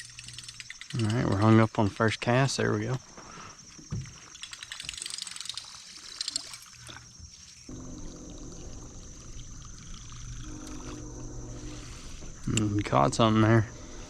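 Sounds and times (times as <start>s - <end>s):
fishing reel cranking: 0.0s - 1.6s, 4.4s - 6.6s
reel clicks: 0.0s - 1.7s, 4.4s - 6.6s
steady low hum: 7.7s - 14.0s.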